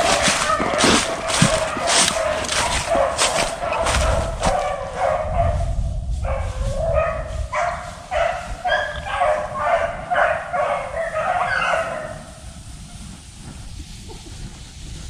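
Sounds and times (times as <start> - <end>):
beagles baying: 0.0 - 5.4, 6.3 - 12.3.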